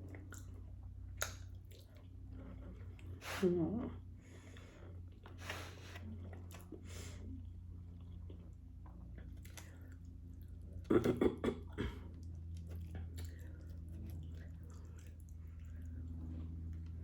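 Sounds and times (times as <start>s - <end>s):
person chewing: 0.0s - 3.2s, 4.5s - 17.0s
wet bites and smacks: 1.1s - 1.9s
low hum: 6.0s - 17.0s.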